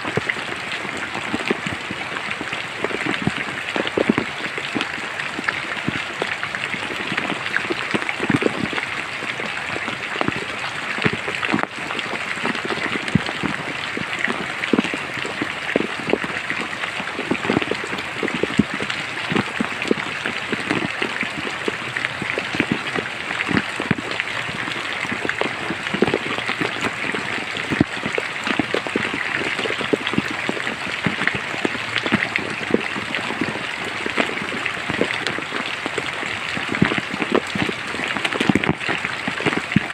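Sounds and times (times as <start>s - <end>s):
rain hiss in forest: 0.0s - 39.9s
raindrops striking close by: 0.0s - 39.9s.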